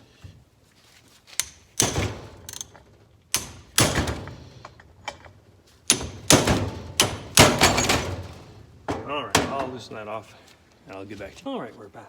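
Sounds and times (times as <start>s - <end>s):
wrench knocking on metal plug: 3.3s - 4.0s.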